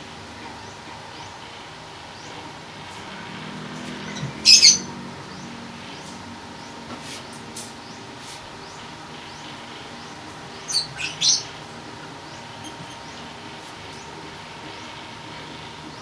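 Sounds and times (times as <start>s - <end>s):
small bird chirping: 3.0s - 14.1s.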